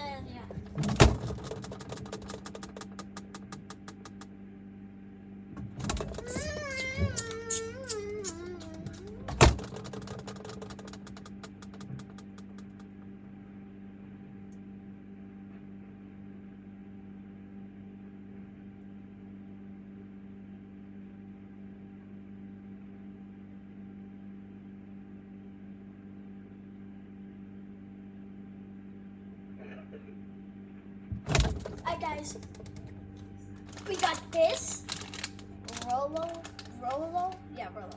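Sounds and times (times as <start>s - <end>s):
household appliance humming: 31.3s - 37.9s.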